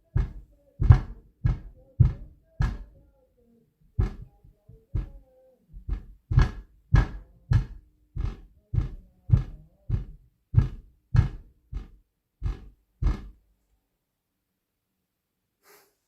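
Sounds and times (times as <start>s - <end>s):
heavy stomping on floor: 0.0s - 3.0s, 4.0s - 13.4s.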